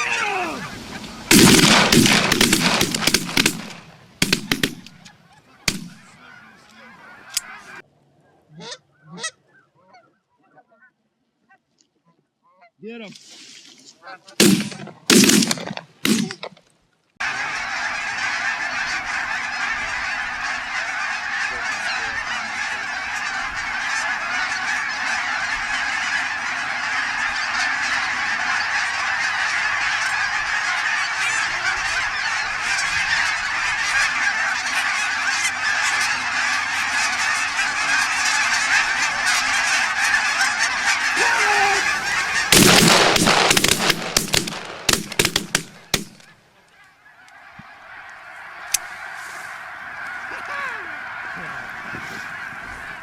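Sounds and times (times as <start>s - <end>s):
geese honking: 0.0s - 12.8s, 14.0s - 16.5s, 17.2s - 53.0s
shotgun blasts: 1.3s - 5.0s, 5.7s - 6.0s, 14.4s - 16.4s, 42.4s - 46.3s.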